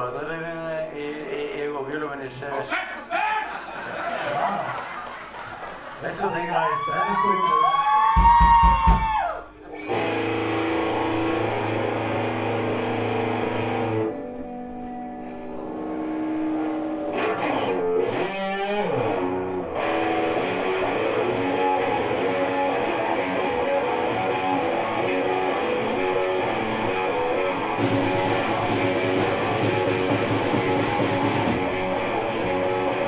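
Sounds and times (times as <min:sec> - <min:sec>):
electric guitar chords: 0:09.8 - 0:33.0
rock band playing: 0:09.8 - 0:33.0.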